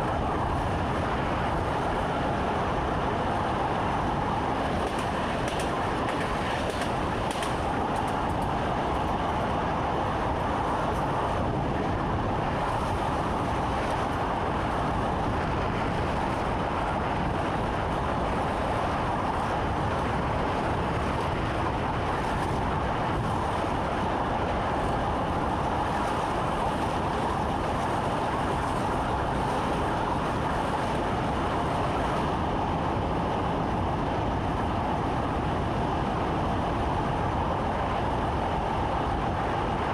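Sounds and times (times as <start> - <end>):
train running rumble: 0.0 - 39.9.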